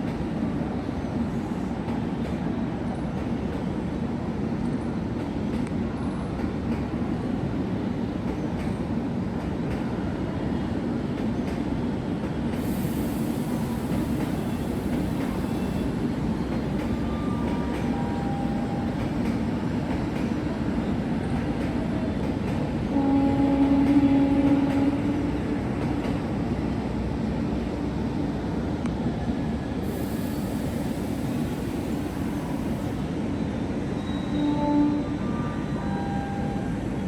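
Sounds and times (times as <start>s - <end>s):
train running: 0.0s - 37.0s
train horn: 22.9s - 25.8s, 34.2s - 36.7s.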